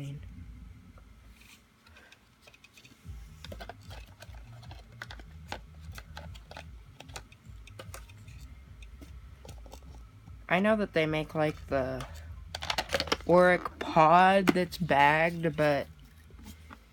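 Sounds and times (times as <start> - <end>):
low rumble: 0.0 - 1.3.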